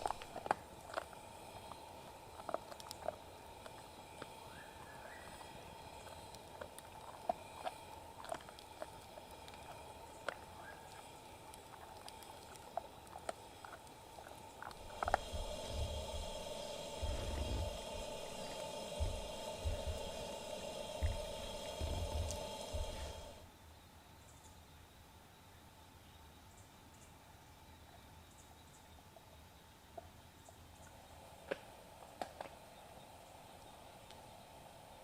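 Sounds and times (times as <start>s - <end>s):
campfire crackling: 0.0s - 23.5s, 30.9s - 35.0s
faint rising whistle: 4.4s - 6.1s, 14.8s - 23.4s
low rumble: 14.6s - 23.4s.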